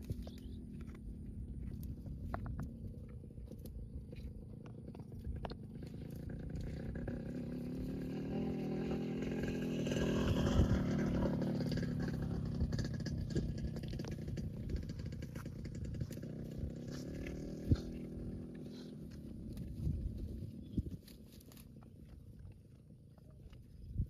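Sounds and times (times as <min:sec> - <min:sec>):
vehicle engine passing by: 0:05.6 - 0:21.7.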